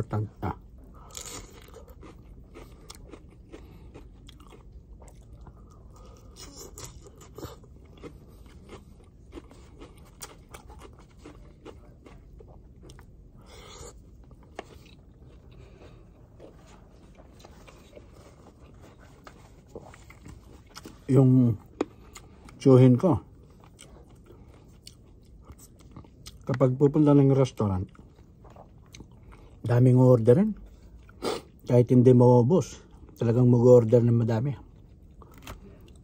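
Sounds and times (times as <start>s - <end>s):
chewing crisp leafy greens: 0.5s - 31.7s, 32.6s - 36.0s.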